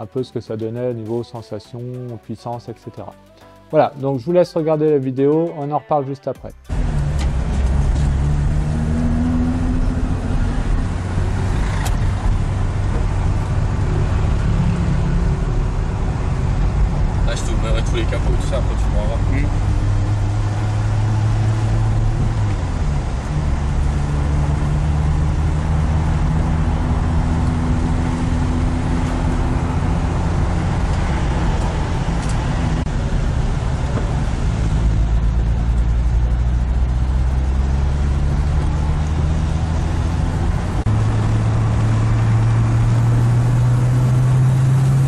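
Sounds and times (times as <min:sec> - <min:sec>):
car engine from inside cabin: 0:06.7 - 0:45.0
tyre and road noise: 0:06.7 - 0:45.0.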